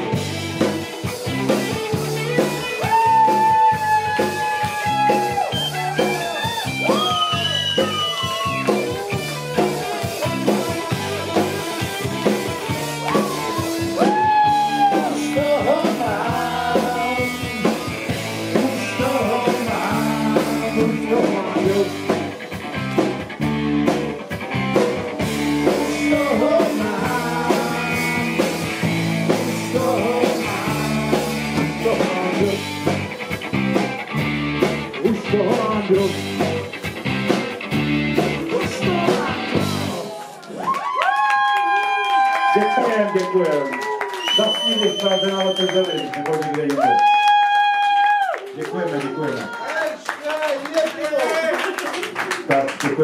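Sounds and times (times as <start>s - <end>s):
rock band playing live: 0.0s - 40.4s.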